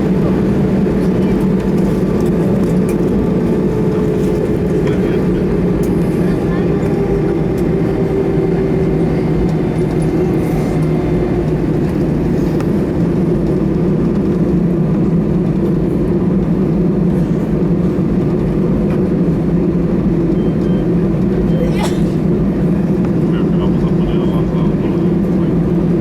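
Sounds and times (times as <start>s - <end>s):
aircraft engines humming: 0.0s - 26.0s
constant cabin rumble: 0.0s - 26.0s.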